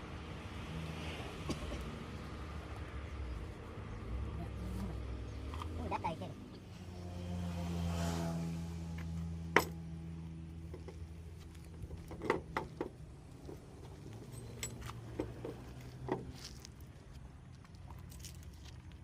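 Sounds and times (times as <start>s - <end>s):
metal tools clinking: 14.2s - 15.2s.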